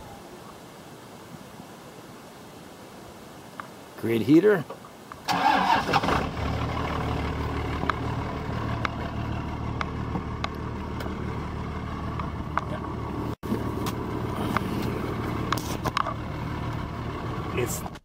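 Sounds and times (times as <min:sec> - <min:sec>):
diesel engine idling: 0:05.3 - 0:18.0.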